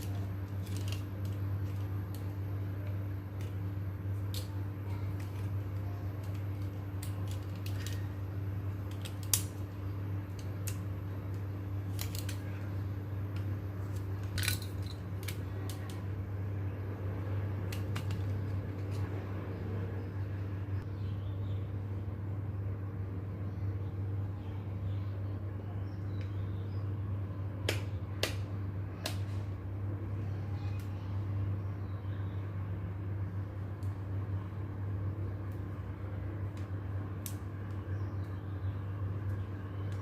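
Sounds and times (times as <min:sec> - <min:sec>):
clicks of small parts handled: 0:00.0 - 0:03.6, 0:06.2 - 0:08.0, 0:08.8 - 0:09.6, 0:11.9 - 0:12.5, 0:13.4 - 0:16.0
steady low hum: 0:00.0 - 0:40.0.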